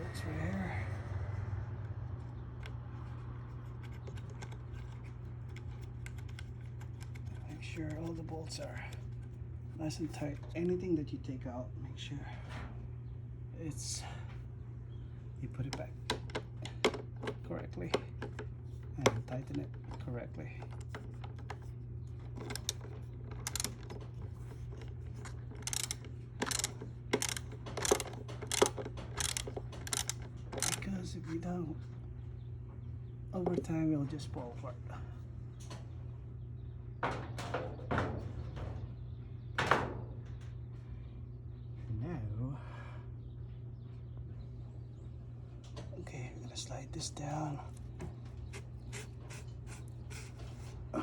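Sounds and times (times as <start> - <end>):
steady low hum: 0.0 - 51.0
metal clicks of bolts tightened: 22.4 - 24.0, 24.7 - 30.9.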